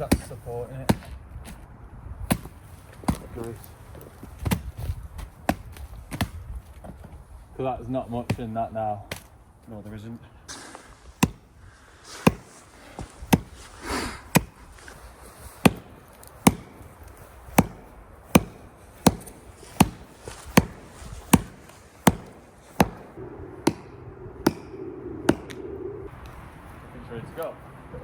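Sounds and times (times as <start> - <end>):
axe chopping wood: 0.0 - 1.6, 2.2 - 3.6, 4.3 - 6.5, 8.3 - 9.4, 10.5 - 11.5, 12.1 - 24.7, 25.3 - 25.6.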